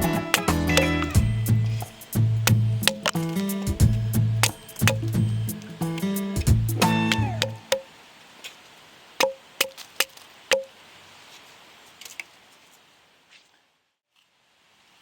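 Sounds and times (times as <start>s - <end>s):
firewood being chopped: 0.3s - 7.9s, 9.2s - 10.7s.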